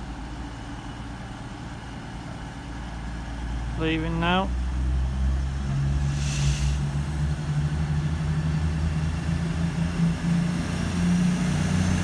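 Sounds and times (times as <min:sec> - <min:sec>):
diesel train engine drone: 0:00.0 - 0:12.0
air hiss: 0:06.1 - 0:06.8.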